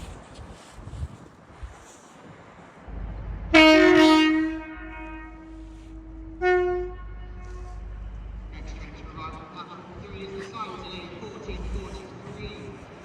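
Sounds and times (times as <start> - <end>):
train engine rumble: 0.0 - 13.0
train horn blasts: 3.5 - 8.0.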